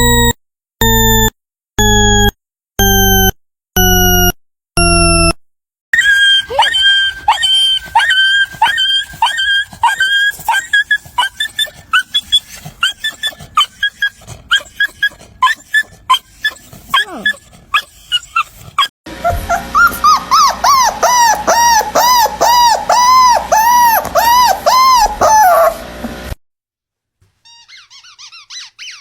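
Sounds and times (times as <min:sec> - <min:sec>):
descending electronic beeps: 0:00.0 - 0:05.3
dog whimpering and yipping: 0:06.0 - 0:25.9, 0:27.5 - 0:29.0.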